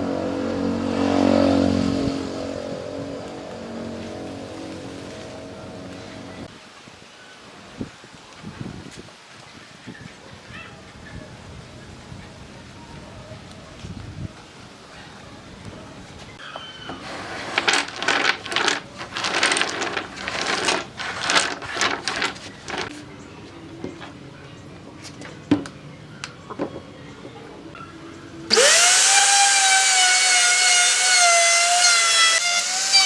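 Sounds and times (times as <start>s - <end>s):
electric power tool whining: 28.5s - 33.0s.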